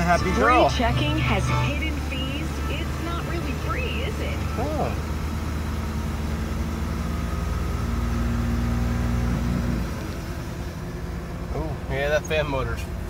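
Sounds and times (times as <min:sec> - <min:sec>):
steady hum: 0:00.0 - 0:04.4
car engine idling: 0:00.0 - 0:13.0.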